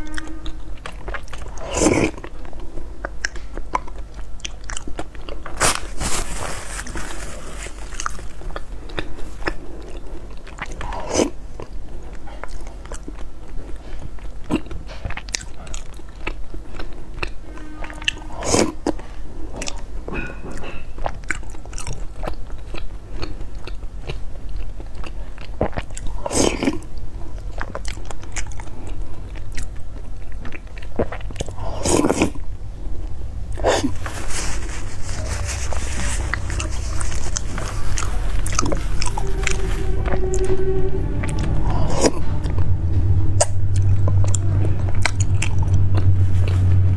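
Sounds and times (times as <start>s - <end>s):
sticky wet chewing sounds: 0.8s - 6.0s, 7.6s - 32.5s.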